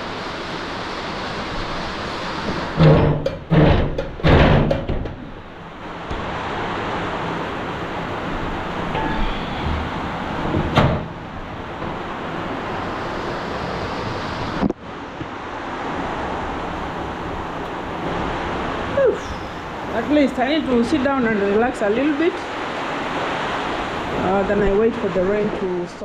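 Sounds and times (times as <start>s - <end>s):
rain falling: 5.4s - 26.0s.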